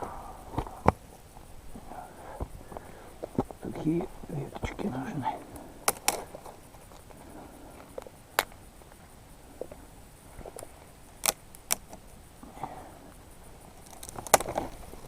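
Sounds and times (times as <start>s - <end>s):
dry twigs snapping: 5.8s - 7.2s, 10.6s - 12.0s, 13.8s - 15.0s.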